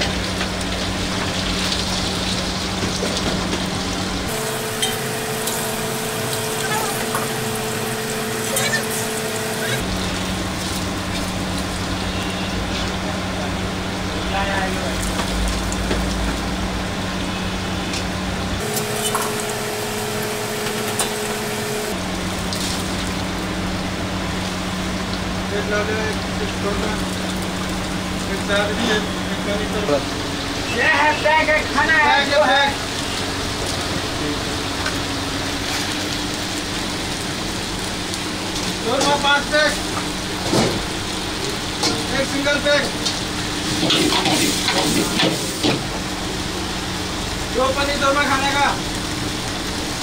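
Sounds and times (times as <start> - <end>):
food sizzling in hot oil: 0.0 - 50.0.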